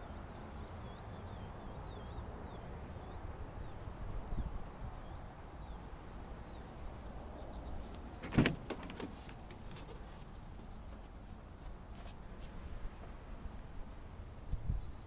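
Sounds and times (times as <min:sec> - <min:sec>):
truck hood slamming shut: 0:08.2 - 0:09.2.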